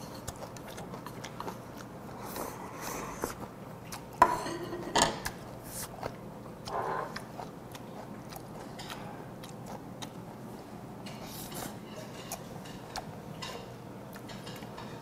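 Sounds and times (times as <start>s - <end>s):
man chewing: 0.0s - 4.2s, 5.2s - 15.0s.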